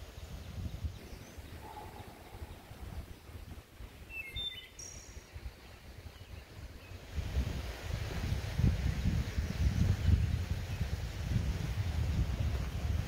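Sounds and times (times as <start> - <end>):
low microphone rumble: 0.6 - 4.1
bird chirps: 0.9 - 3.3, 4.1 - 5.6.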